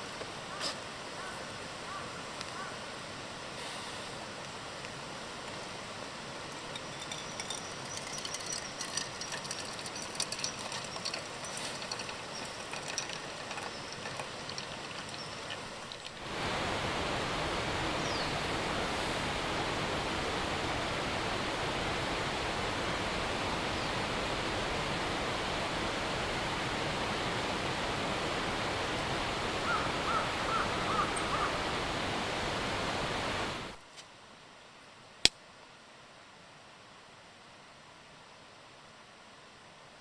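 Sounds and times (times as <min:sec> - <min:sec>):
running water rushing: 0:03.0 - 0:33.8.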